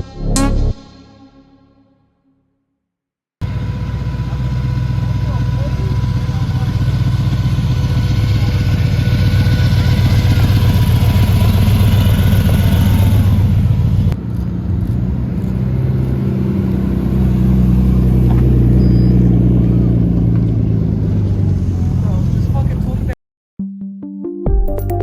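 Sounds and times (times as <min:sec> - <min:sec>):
car engine pulsing rumble: 0:03.4 - 0:23.2.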